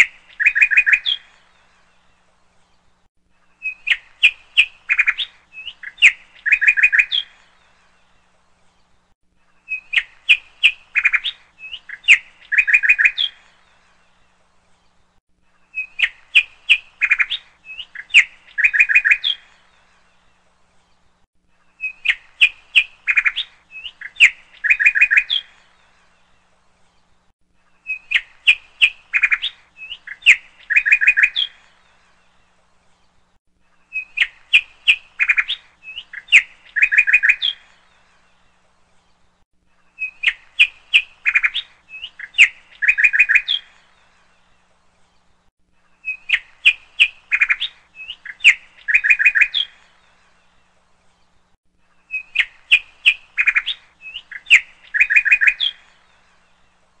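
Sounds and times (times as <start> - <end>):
bird chirping phrase: 40.0 - 51.4, 52.0 - 56.7.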